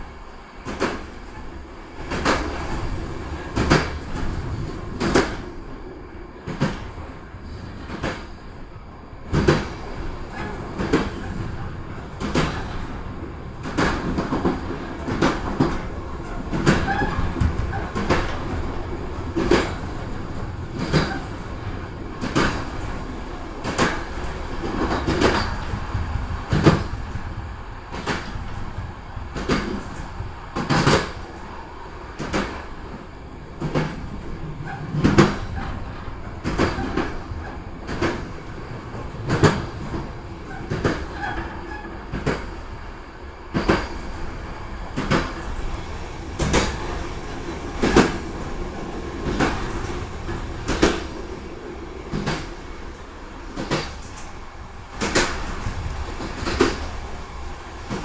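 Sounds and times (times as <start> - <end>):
wheels rumbling on rail: 0.0 - 58.0
sharp clacks and knocks: 55.0 - 56.9.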